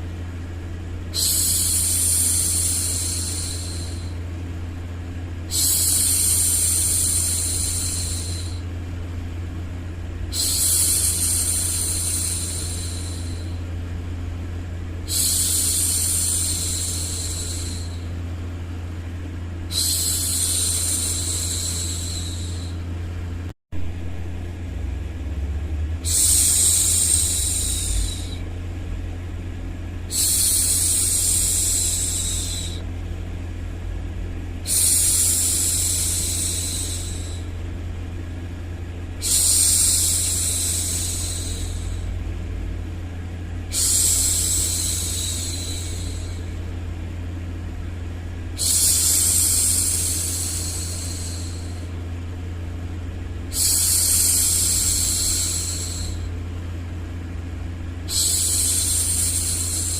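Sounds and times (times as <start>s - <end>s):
steady low rumbling noise: 0.0s - 59.9s.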